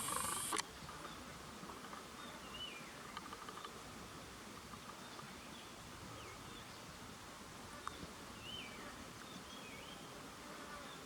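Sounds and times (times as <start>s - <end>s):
sharp click: 0.0s - 0.6s
background hiss: 0.0s - 11.0s.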